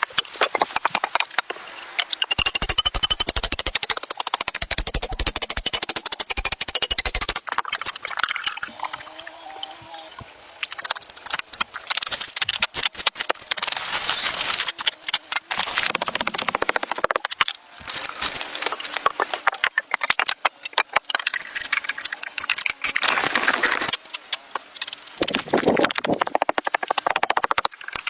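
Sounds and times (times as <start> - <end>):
sharp knocks and clicks: 0.2 - 8.0, 14.9 - 17.6, 18.6 - 22.9, 23.9 - 28.0.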